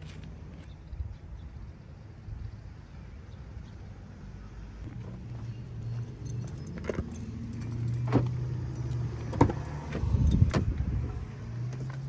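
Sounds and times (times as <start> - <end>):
light metallic jingling: 4.9 - 12.0.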